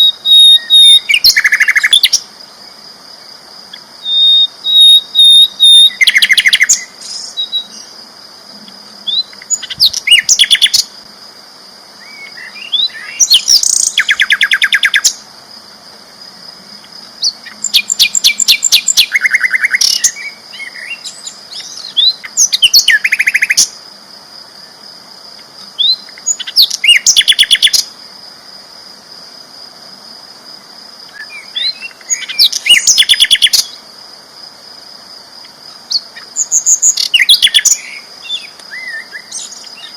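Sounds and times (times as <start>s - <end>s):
bird singing rapid notes: 0.0s - 2.2s, 4.1s - 7.9s, 31.3s - 33.7s
soft bird chirps: 0.0s - 2.2s.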